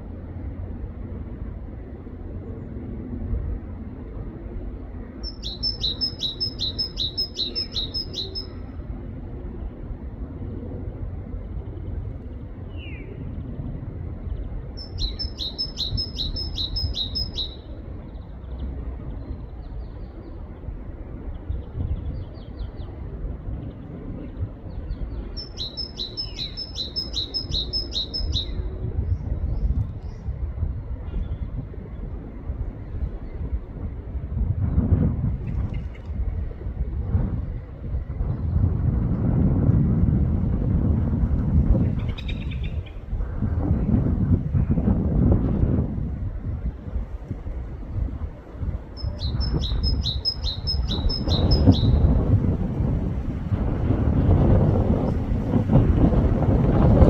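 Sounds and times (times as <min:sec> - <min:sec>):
great tit singing: 0:05.2 - 0:08.6, 0:14.8 - 0:17.7, 0:25.2 - 0:28.6, 0:48.9 - 0:52.1
low rumble: 0:17.8 - 0:57.0.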